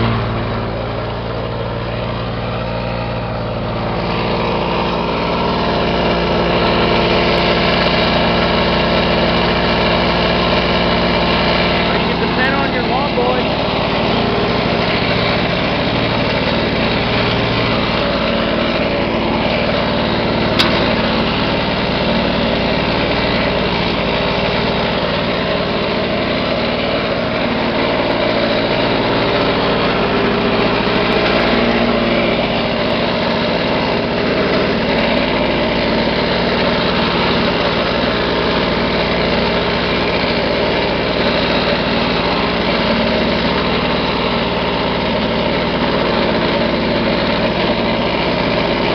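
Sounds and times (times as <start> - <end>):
lawn mower engine running: 0.0 - 48.9
sharp click: 20.6 - 20.9.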